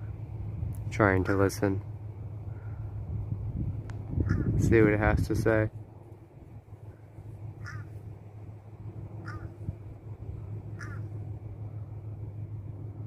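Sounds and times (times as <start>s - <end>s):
steady low hum: 0.0s - 13.0s
crow cawing: 2.5s - 3.0s, 4.2s - 4.6s, 6.9s - 8.0s, 9.2s - 9.6s, 10.7s - 11.2s.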